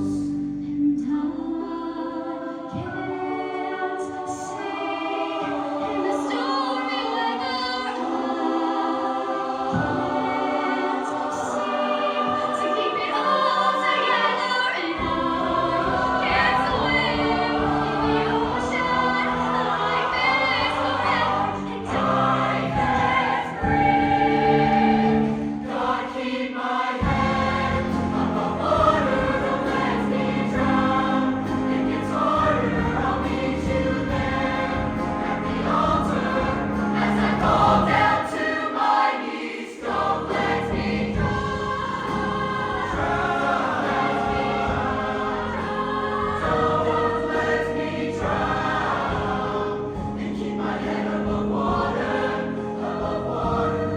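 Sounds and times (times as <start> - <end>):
choir singing: 0.0 - 53.9
low bass notes: 27.0 - 38.2
band accompaniment: 27.0 - 38.5, 39.8 - 53.9.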